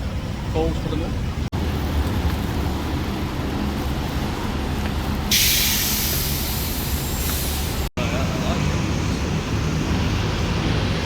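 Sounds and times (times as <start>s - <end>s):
city traffic rumble: 0.0s - 11.0s
loud hiss: 5.3s - 7.9s.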